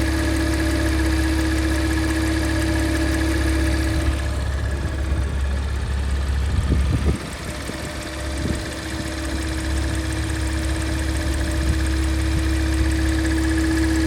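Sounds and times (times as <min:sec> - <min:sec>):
car engine low drone: 0:00.0 - 0:14.0
constant humming tone: 0:00.0 - 0:14.0.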